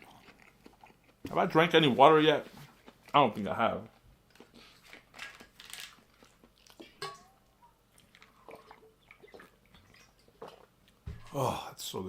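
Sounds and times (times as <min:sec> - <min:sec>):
person chewing crunchy food: 0:00.0 - 0:01.3, 0:02.4 - 0:07.0, 0:07.9 - 0:11.0.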